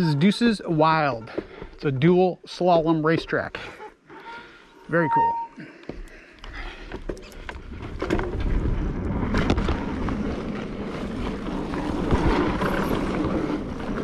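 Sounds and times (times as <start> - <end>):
bike clicks and rattles: 6.0 - 14.0
bike tyres rumbling on dirt: 7.3 - 14.0.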